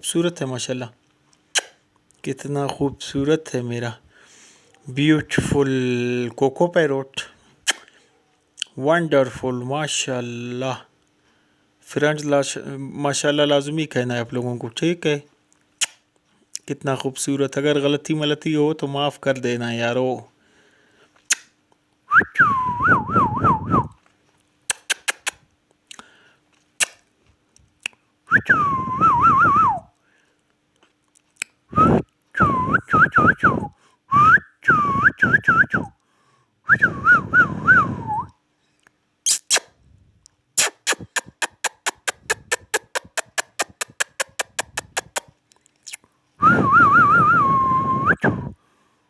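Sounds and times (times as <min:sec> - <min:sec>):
parrot whistling: 0:39.3 - 0:39.6, 0:40.6 - 0:45.2
fast clicks: 0:40.8 - 0:45.3.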